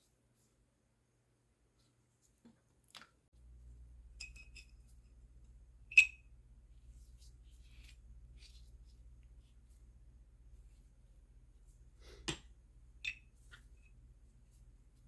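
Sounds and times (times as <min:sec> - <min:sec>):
low steady hum: 0:03.4 - 0:15.0.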